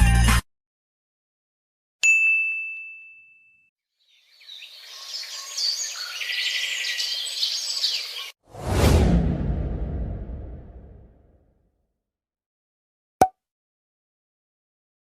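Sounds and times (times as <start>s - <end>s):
bright bell ding: 2.0s - 3.7s
birds chirping: 4.0s - 8.4s.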